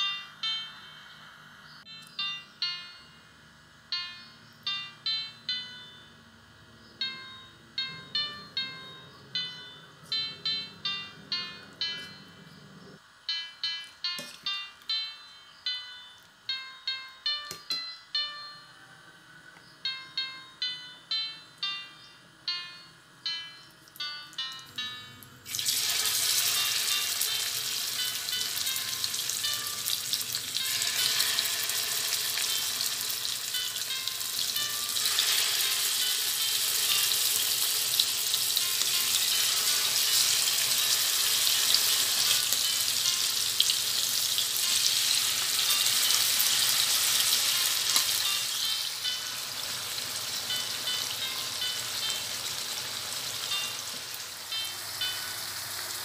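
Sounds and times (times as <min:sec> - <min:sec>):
liver sizzling in hot oil: 0:25.5 - 0:56.0.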